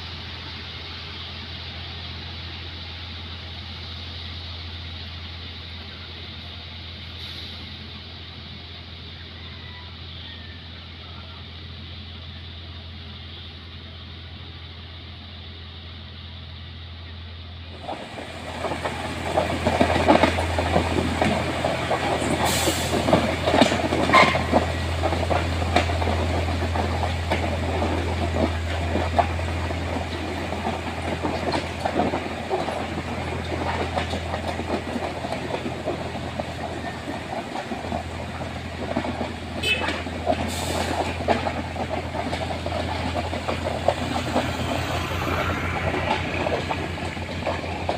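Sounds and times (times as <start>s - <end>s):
train wheels clattering on rails: 17.7s - 47.9s
low engine drone: 40.4s - 47.9s.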